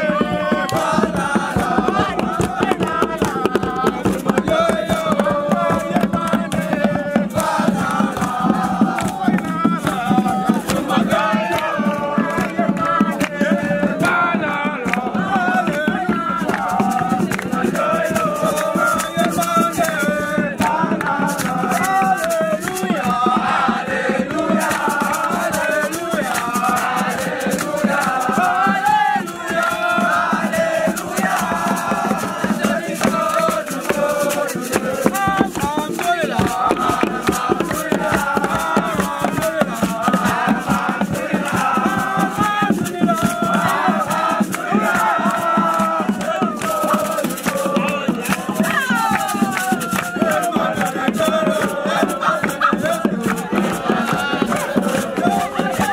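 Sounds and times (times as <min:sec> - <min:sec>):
group of voices chanting: 0:00.0 - 0:55.9
rattles shaken: 0:24.2 - 0:55.9.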